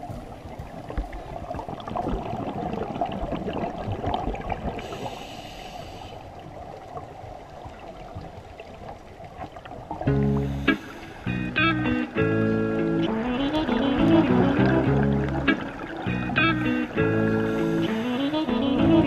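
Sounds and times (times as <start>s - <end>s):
underwater bubbles gurgling: 0.0s - 11.3s, 13.4s - 18.0s
hiss: 4.8s - 6.2s
music: 10.1s - 19.0s.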